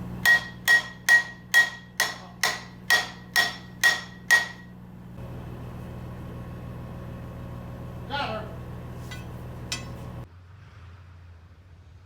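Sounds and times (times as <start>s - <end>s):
engine idling: 0.0s - 10.3s
hammer ringing on steel: 0.2s - 4.7s, 9.1s - 10.1s.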